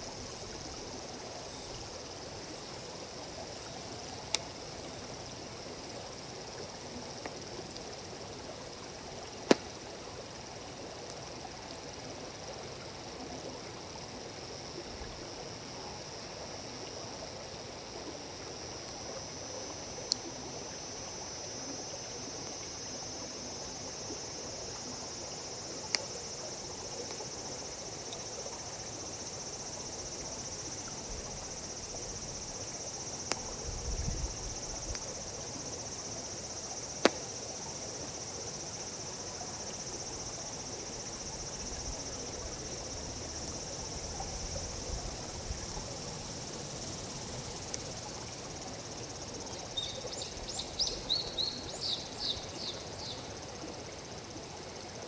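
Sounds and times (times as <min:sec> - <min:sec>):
high insect chorus: 0:00.0 - 0:55.0
running water hiss: 0:00.0 - 0:55.0
campfire crackling with pops: 0:04.1 - 0:04.6, 0:09.4 - 0:09.8, 0:25.8 - 0:26.1, 0:33.2 - 0:33.8, 0:34.7 - 0:35.1, 0:37.0 - 0:37.3.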